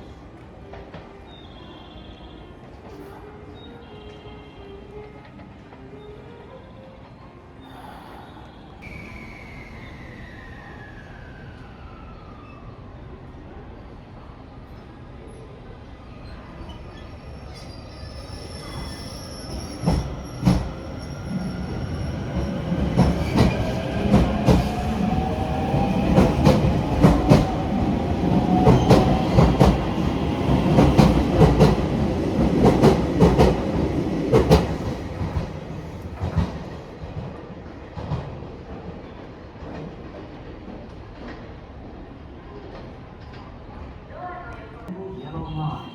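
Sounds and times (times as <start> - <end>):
train wheels clicking on rails: 19.5 - 41.6.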